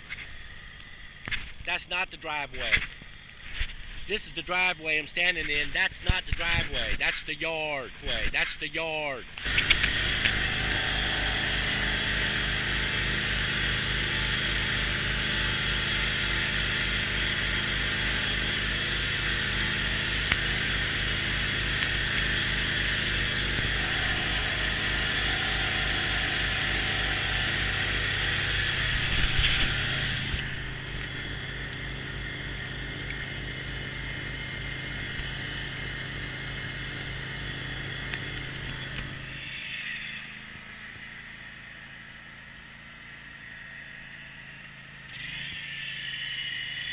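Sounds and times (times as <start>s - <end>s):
high whine: 0.0s - 46.9s
lawn tractor engine running: 9.3s - 39.3s.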